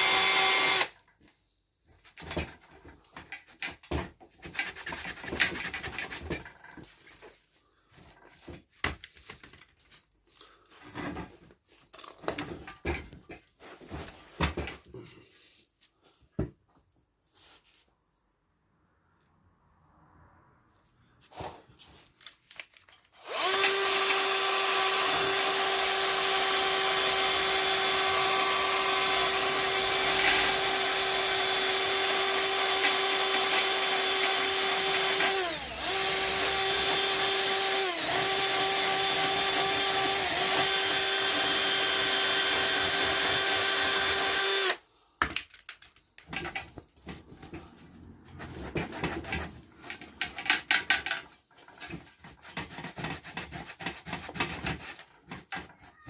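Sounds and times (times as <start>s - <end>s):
power tool running high-pitched: 0.0s - 0.9s.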